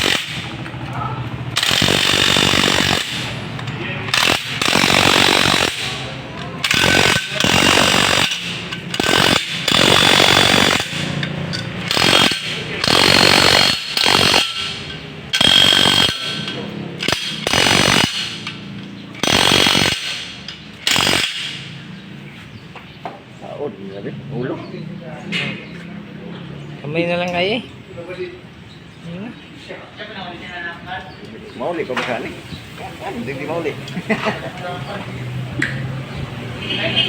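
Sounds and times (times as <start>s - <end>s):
power tool whining in bursts: 0.0s - 0.7s, 1.3s - 22.0s.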